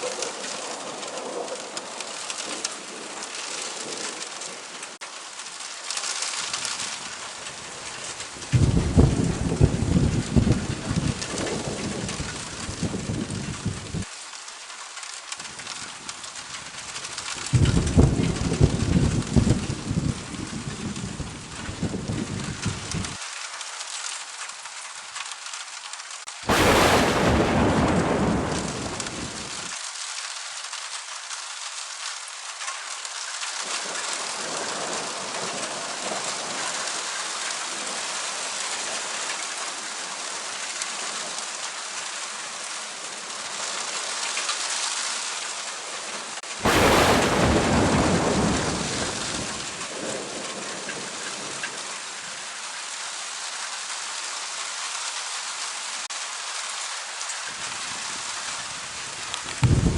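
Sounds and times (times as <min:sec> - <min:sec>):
heavy rain: 0:00.0 - 0:59.9
low thunder rumble: 0:08.5 - 0:14.1, 0:17.5 - 0:23.2, 0:26.5 - 0:29.7, 0:46.6 - 0:51.1, 0:59.6 - 0:59.9
loud thunder cracks: 0:08.6 - 0:14.0, 0:17.6 - 0:20.0, 0:26.5 - 0:29.7, 0:46.6 - 0:50.0, 0:59.6 - 0:59.9.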